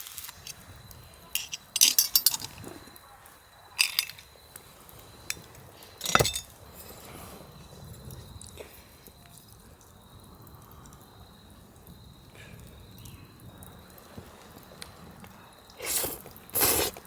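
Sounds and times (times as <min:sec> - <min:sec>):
cookware and utensils clinking: 0:01.3 - 0:02.8, 0:03.8 - 0:04.3, 0:05.3 - 0:06.9.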